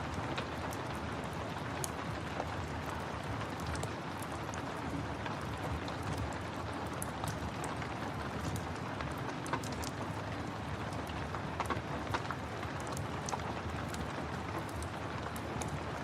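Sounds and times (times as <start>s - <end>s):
rain falling: 0.0s - 16.0s
wood fire crackling: 5.2s - 16.0s.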